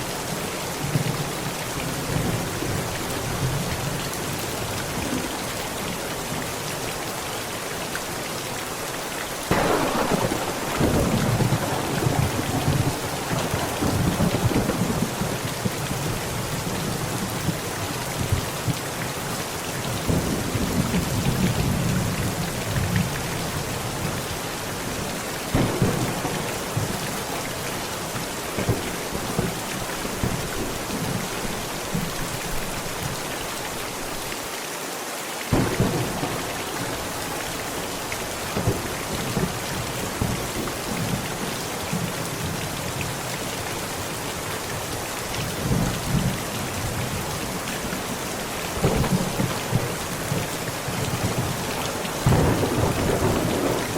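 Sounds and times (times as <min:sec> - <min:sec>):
heavy rain on a tent: 0:00.0 - 0:53.9
thunder rumbling: 0:09.5 - 0:16.6, 0:25.5 - 0:32.1, 0:35.5 - 0:39.6, 0:48.7 - 0:53.9.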